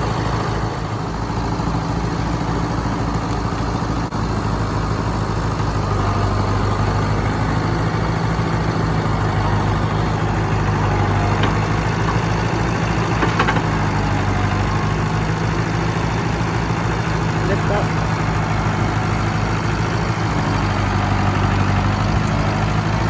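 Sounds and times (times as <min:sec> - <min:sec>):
tractor engine running: 0:00.0 - 0:23.0
light knocks: 0:11.0 - 0:12.5, 0:13.1 - 0:14.0.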